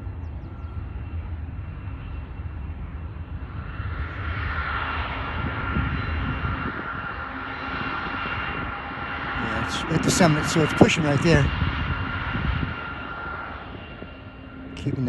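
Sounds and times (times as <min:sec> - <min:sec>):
diesel locomotive engine rumble: 0:00.0 - 0:04.3
high engine whine: 0:00.0 - 0:15.0.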